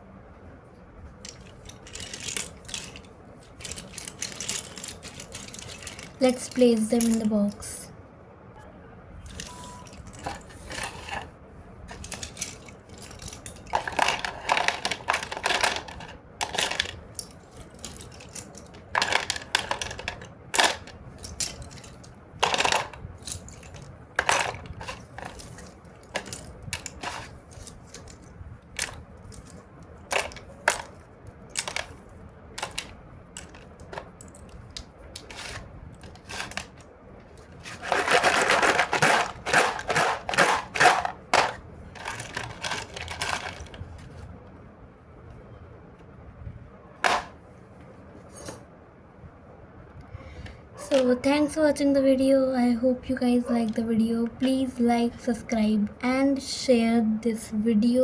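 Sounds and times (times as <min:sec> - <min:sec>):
slate pencils clicking together: 0:01.2 - 0:07.7, 0:11.9 - 0:32.0, 0:32.6 - 0:36.9.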